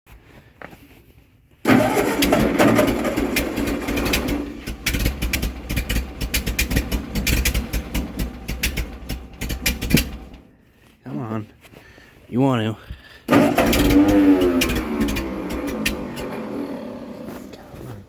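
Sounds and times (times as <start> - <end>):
tractor engine cranking and chugging: 1.6 - 10.8, 12.9 - 18.0.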